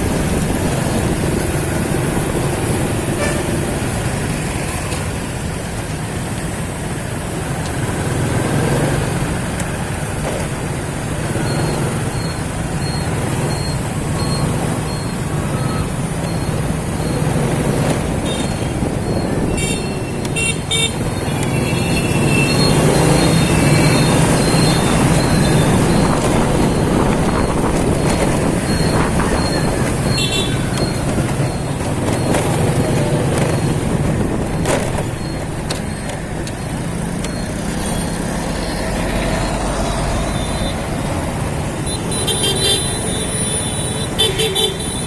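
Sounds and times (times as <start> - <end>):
motorcycle engine hum: 0.0 - 45.0
road and traffic noise: 0.0 - 45.0
car horns beeping: 18.1 - 33.8, 41.8 - 45.0.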